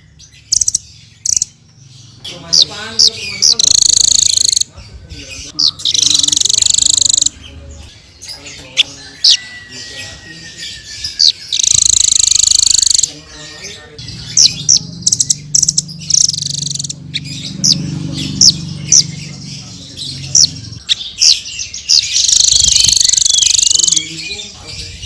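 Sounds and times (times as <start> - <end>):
parrot sharp high chirps: 0.0 - 1.6, 2.6 - 4.7, 5.6 - 7.4, 10.6 - 13.1, 14.4 - 19.1, 20.7 - 24.1
parrot buzzy high trill: 3.5 - 4.7, 5.9 - 7.4, 11.6 - 13.1.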